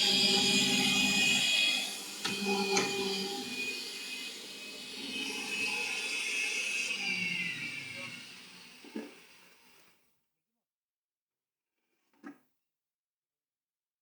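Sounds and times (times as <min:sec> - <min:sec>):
threading machine whine: 0:00.0 - 0:09.2.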